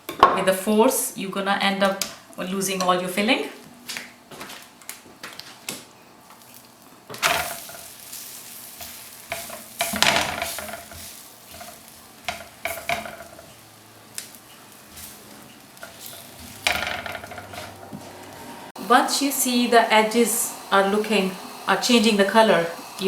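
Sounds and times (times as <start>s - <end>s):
flatbread sizzling on a griddle: 6.2s - 23.0s
utensils knocking and scraping: 8.8s - 13.6s, 14.2s - 18.6s.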